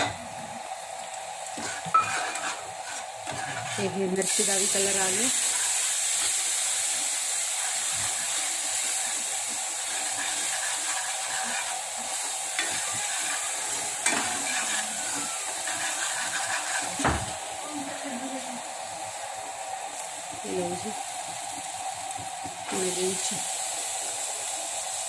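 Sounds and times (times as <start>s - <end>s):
food sizzling in hot oil: 0.0s - 25.0s
metal ladle scraping pan: 1.6s - 4.0s, 9.8s - 17.1s.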